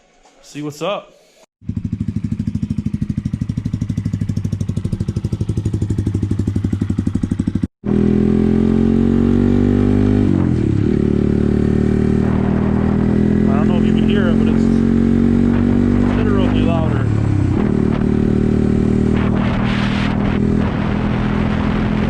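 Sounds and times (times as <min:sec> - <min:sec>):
motorcycle engine idling: 0:01.6 - 0:07.7
motorcycle engine revving: 0:01.6 - 0:22.0.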